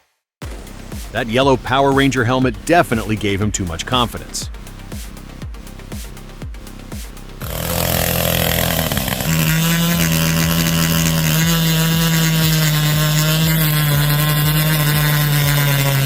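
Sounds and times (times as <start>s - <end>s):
chainsaw revving: 7.4s - 16.0s.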